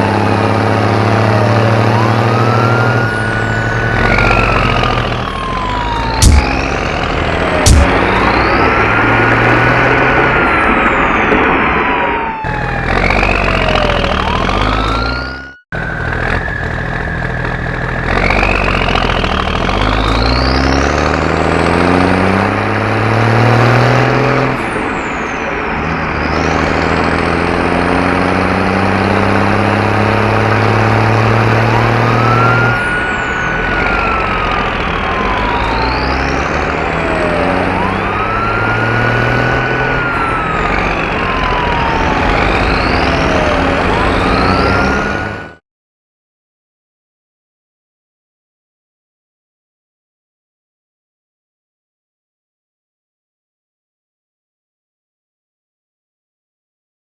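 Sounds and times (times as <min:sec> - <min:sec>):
vehicle engine revving: 0:00.0 - 0:10.5, 0:17.7 - 0:45.6
cartoon siren wailing: 0:00.0 - 0:19.1, 0:19.8 - 0:45.6.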